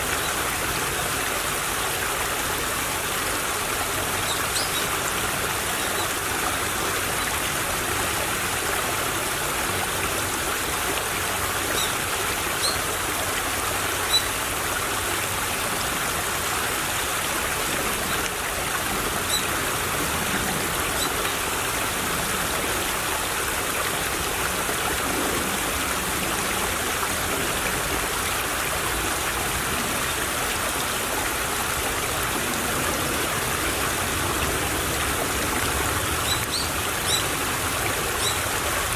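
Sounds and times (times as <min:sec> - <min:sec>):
stream trickling: 0:00.0 - 0:38.9.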